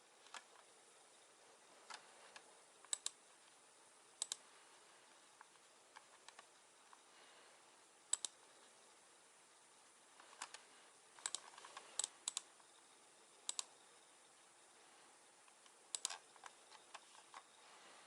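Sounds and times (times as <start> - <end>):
faint hiss: 0.0 - 18.0
small sharp clicks: 1.9 - 3.2, 4.2 - 4.4, 8.1 - 8.4, 11.2 - 12.6, 13.4 - 13.7, 15.4 - 17.5.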